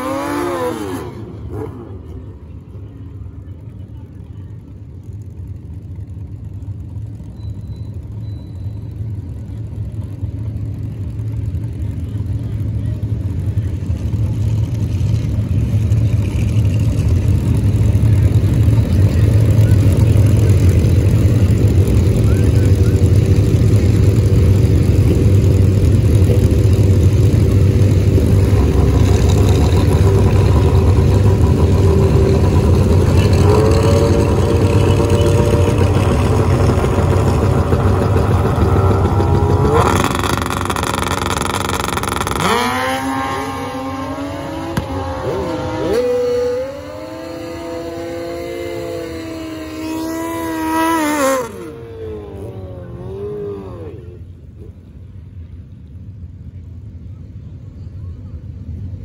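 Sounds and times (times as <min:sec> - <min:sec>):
engine revving up: 0:00.0 - 0:01.9, 0:18.8 - 0:54.1
car engines rumbling: 0:00.0 - 0:59.0.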